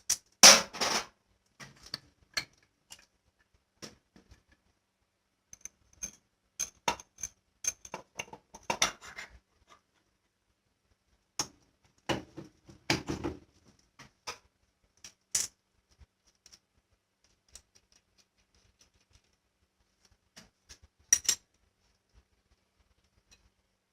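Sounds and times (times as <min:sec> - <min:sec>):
small metal parts clinking: 0:21.1 - 0:21.4.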